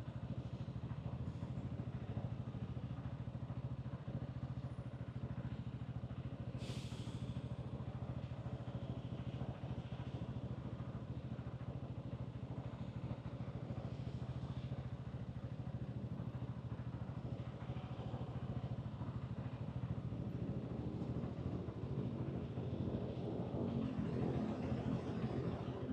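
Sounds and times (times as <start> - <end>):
brief hiss: 6.6 - 7.3
motorcycle engine running: 7.6 - 25.8.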